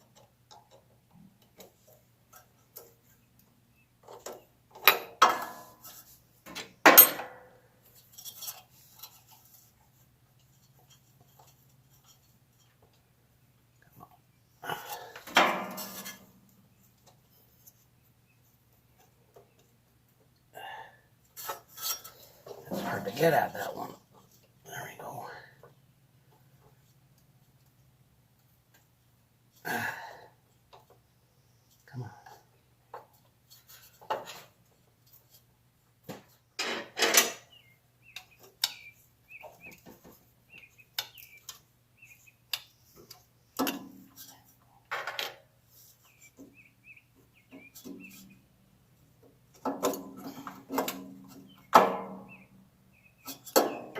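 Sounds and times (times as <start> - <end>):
small birds chirping: 8.8 - 21.1, 37.4 - 44.9, 45.7 - 53.9
rattling scrape: 15.0 - 16.3.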